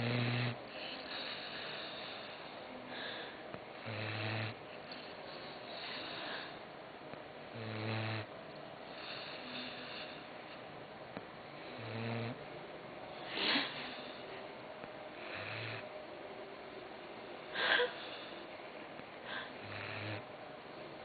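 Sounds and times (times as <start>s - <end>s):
dog snoring: 0.0s - 3.2s, 3.8s - 6.6s, 7.5s - 8.3s, 8.9s - 10.6s, 11.6s - 12.5s, 13.2s - 14.2s, 15.2s - 15.9s, 19.4s - 20.3s.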